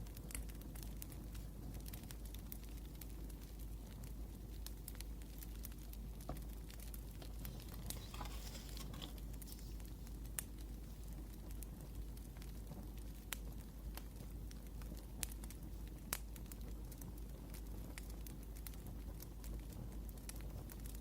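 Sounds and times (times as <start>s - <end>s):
wood fire crackling and popping: 0.0s - 21.0s
brief rustle: 7.2s - 9.8s.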